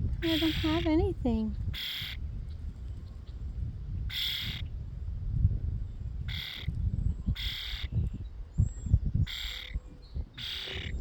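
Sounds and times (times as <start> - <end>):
young bird begging calls: 0.2 - 2.2, 4.1 - 4.6, 6.3 - 6.7, 7.4 - 8.0, 9.3 - 9.8, 10.4 - 11.0.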